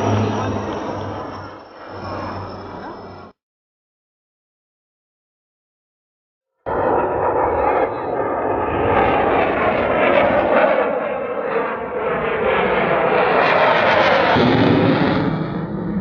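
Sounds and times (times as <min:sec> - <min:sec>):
jet aircraft flying past: 0:00.0 - 0:03.4, 0:06.7 - 0:16.0.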